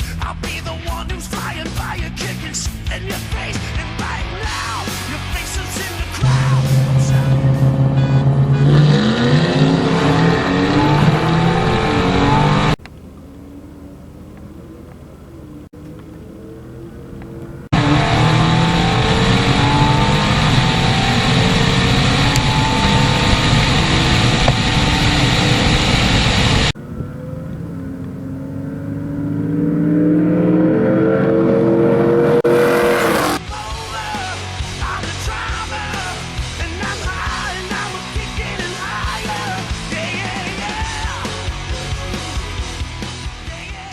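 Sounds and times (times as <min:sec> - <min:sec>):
rock music: 0:00.0 - 0:12.8, 0:29.2 - 0:43.9
race car engines revving: 0:00.9 - 0:33.5.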